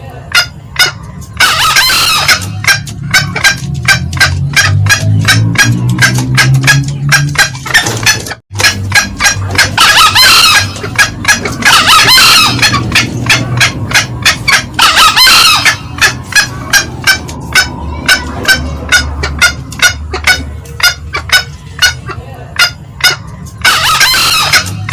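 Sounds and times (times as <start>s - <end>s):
junglefowl cackling calls: 0.0s - 24.9s
junglefowl longer calls: 0.3s - 24.9s.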